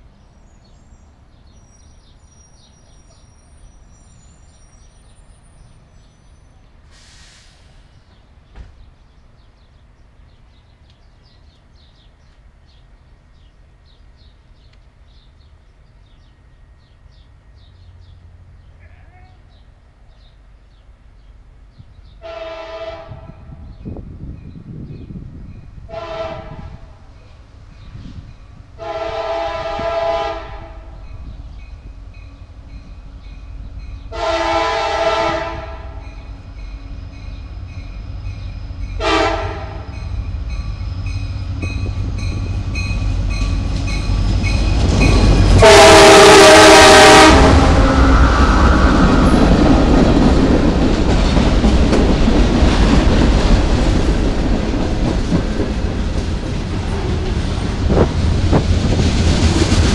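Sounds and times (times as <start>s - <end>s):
train rumble and clatter: 0.0s - 59.9s
train horn blasts: 22.2s - 23.8s, 25.9s - 27.1s, 28.8s - 31.3s, 34.1s - 37.8s, 38.8s - 40.1s, 45.1s - 48.5s.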